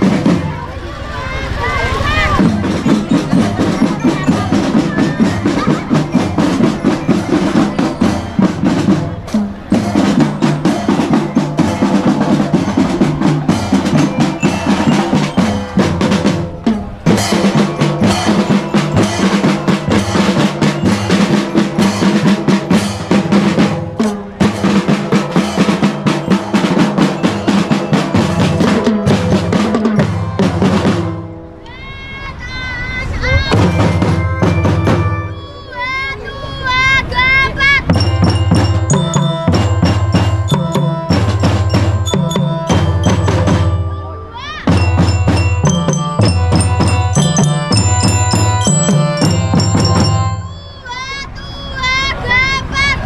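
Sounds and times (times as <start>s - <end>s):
bass drums: 1.6s - 31.4s, 44.7s - 50.6s
snare drum rolls: 37.9s - 43.9s, 44.7s - 50.5s.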